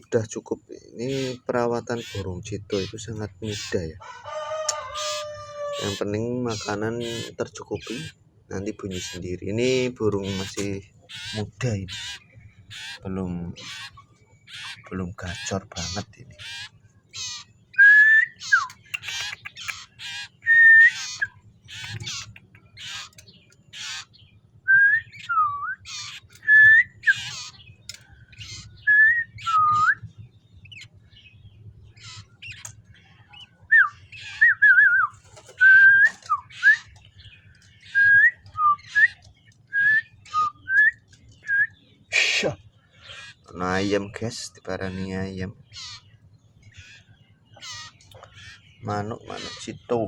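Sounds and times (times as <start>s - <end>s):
bird harsh chattering notes: 1.0s - 4.0s, 4.7s - 17.6s, 18.3s - 24.2s, 25.1s - 28.8s, 42.1s - 44.1s, 44.8s - 50.0s
bird whistled notes: 17.8s - 19.8s.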